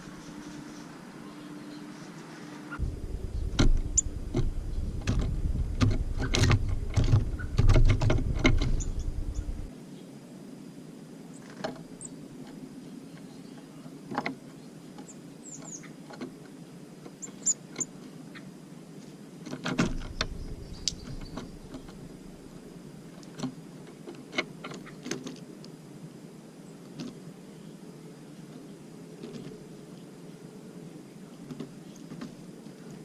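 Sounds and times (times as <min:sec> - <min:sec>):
birds tapping and pecking: 0:02.8 - 0:09.7, 0:19.4 - 0:22.1.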